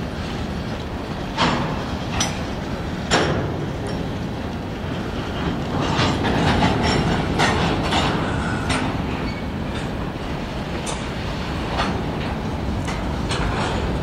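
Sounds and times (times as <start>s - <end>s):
freight train rumbling past: 0.0s - 14.0s
wheels clunking over rail joints: 0.0s - 14.0s.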